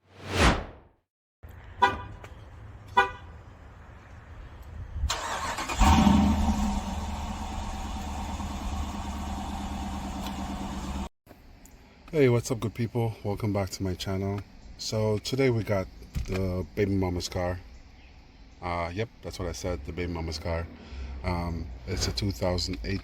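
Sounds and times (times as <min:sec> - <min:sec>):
quick whoosh: 0:00.0 - 0:00.9
car horn toots: 0:01.8 - 0:02.2, 0:02.9 - 0:03.3
car engine starting and running: 0:05.1 - 0:11.1.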